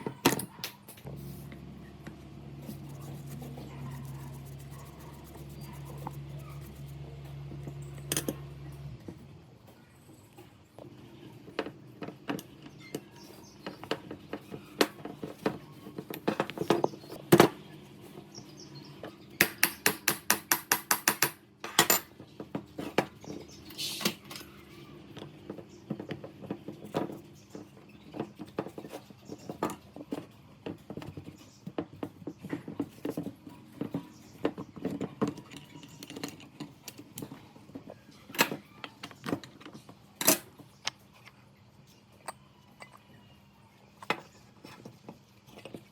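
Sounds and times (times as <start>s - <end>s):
metal tools clinking on workbench: 20.9s - 22.2s.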